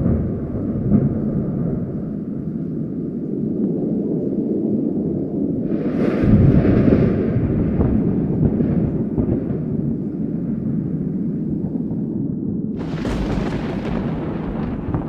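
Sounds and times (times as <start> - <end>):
steady low wind: 0.0 - 15.0
thunder crack and rumble: 0.0 - 15.0.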